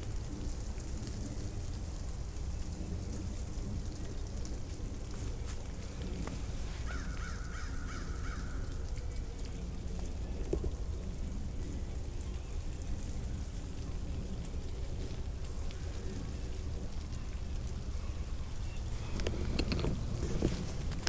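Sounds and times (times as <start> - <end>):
low rumble: 0.0 - 6.8
faint ticks: 0.0 - 21.0.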